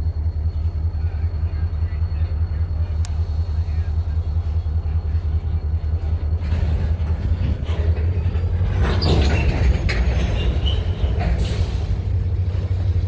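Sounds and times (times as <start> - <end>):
freight train rumble: 0.0 - 13.0
wheel and rail squeals: 3.6 - 13.0.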